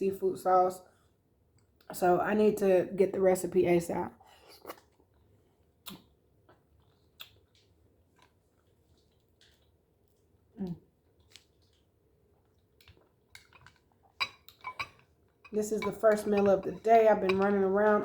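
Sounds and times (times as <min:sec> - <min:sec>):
quiet chewing: 0:04.2 - 0:15.5.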